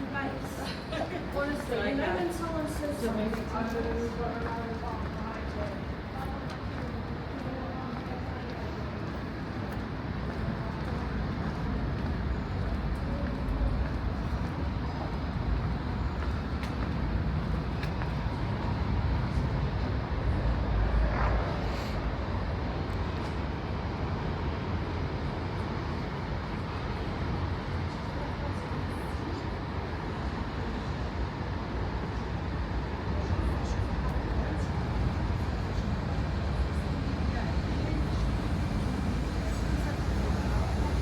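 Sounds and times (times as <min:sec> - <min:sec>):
steady road traffic: 0:00.0 - 0:41.0
vehicle passing: 0:20.1 - 0:22.9.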